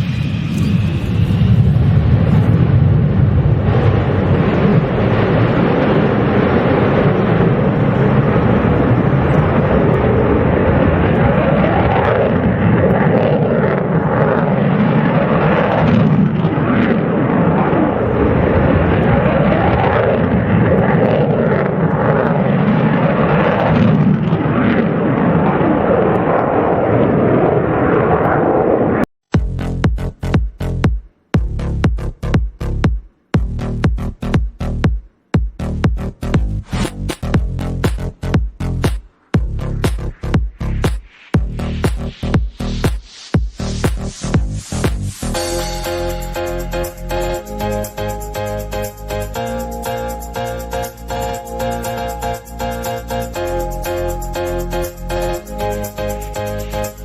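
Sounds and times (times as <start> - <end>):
aircraft engine noise: 0.0 - 29.1.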